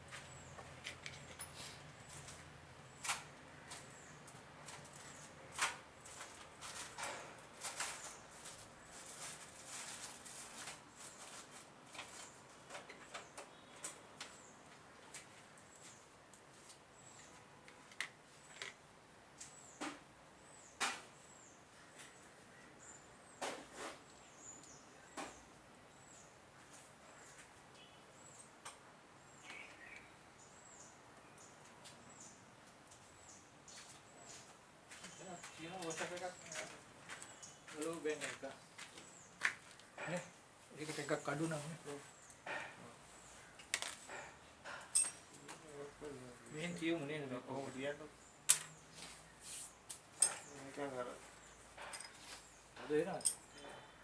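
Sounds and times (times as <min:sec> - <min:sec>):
hand tools being handled: 0:43.6 - 0:45.6, 0:48.5 - 0:50.6, 0:51.8 - 0:53.8.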